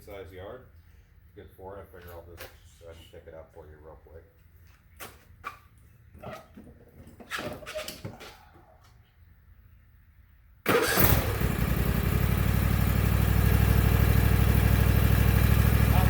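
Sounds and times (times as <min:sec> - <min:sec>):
tractor engine cranking and running: 0:10.7 - 0:16.0.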